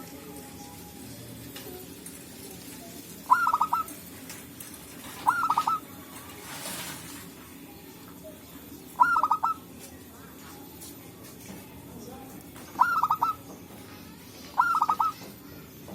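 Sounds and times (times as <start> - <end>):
dove cooing: 3.2 - 4.1, 5.0 - 7.0, 9.0 - 9.7, 12.7 - 13.5, 14.4 - 15.4.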